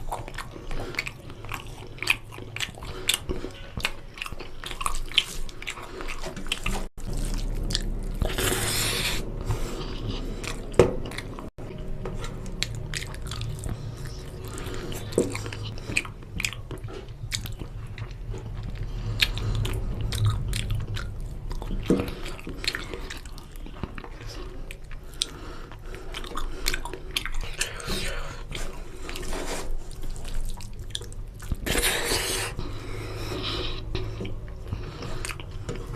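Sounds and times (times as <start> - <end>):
chewing and mouth clicks: 0.0 - 35.9
low hum: 7.0 - 27.0.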